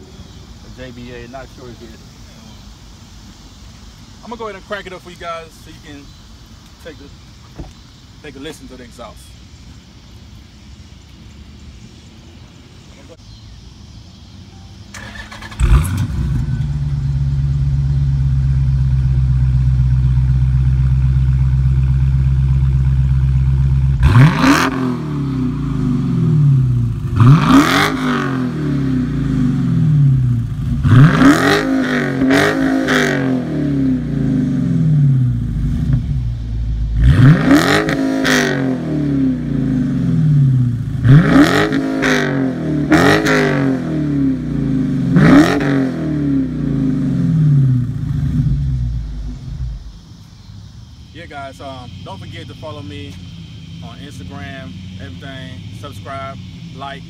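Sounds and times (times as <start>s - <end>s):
car engine idling and revving: 13.1s - 57.0s.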